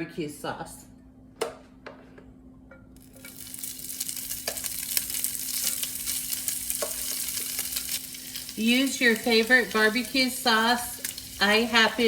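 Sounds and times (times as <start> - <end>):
food sizzling on a griddle: 3.0 - 12.0.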